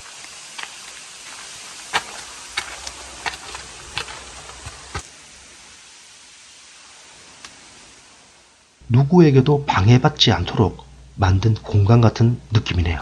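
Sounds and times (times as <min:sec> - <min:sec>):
footsteps on stone and grit: 0:00.0 - 0:05.1
steady hiss: 0:00.0 - 0:13.0.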